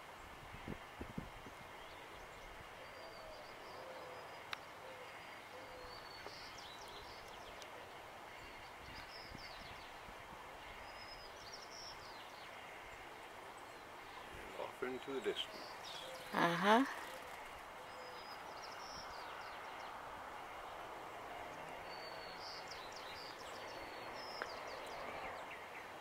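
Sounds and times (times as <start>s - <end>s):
faint background hiss: 0.0s - 26.0s
distant bird chirps: 1.8s - 26.0s.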